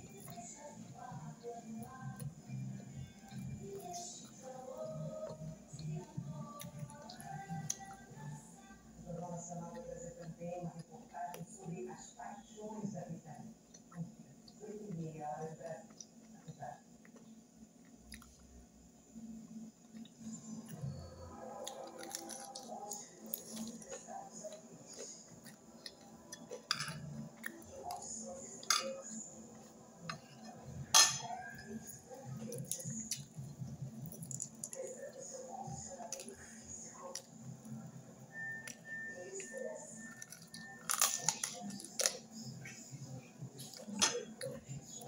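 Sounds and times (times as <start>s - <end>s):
chewing meat: 19.8s - 28.7s
person chewing meat: 21.6s - 22.7s.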